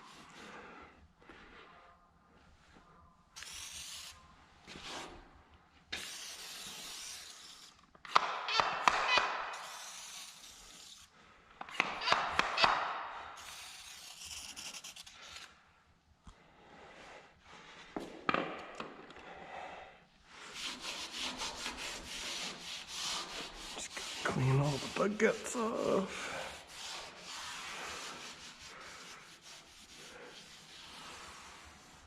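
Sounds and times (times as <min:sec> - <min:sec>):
spray bottle hissing: 0:03.4 - 0:04.2, 0:06.0 - 0:07.8, 0:09.6 - 0:11.1, 0:13.4 - 0:15.4.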